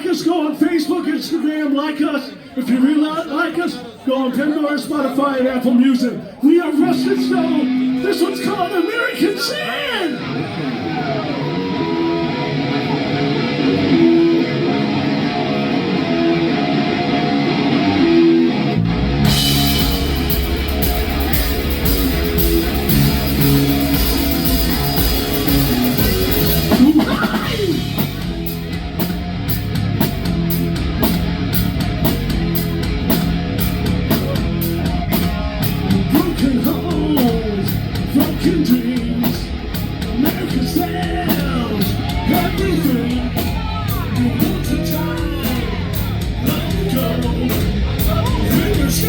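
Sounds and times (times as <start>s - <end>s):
rock band playing: 6.5s - 49.0s
electric guitar playing: 6.8s - 49.0s
bass guitar: 10.2s - 49.0s
drum kit: 15.3s - 49.0s.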